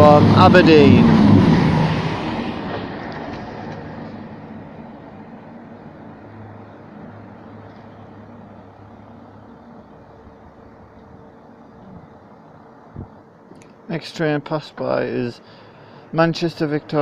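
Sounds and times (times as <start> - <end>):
diesel train passing: 0.0 - 17.0
faint low hum: 5.6 - 17.0.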